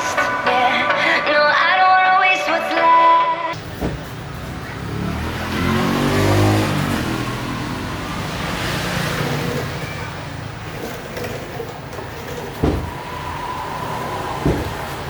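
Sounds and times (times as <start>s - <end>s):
vehicle engine passing by: 4.1s - 11.0s, 12.9s - 15.0s
steady noisy background: 8.0s - 15.0s.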